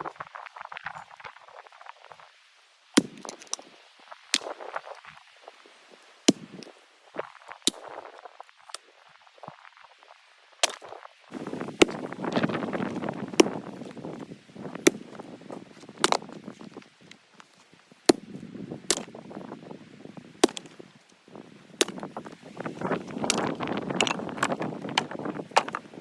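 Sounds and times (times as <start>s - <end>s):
axe chopping wood: 3.0s - 3.6s, 6.3s - 6.6s, 11.8s - 12.0s, 12.8s - 13.9s, 14.7s - 15.2s, 16.0s - 16.3s, 18.1s - 19.1s, 20.4s - 20.7s, 21.8s - 25.9s
rustling of handled wood: 3.0s - 6.8s, 10.6s - 19.3s, 20.2s - 26.0s.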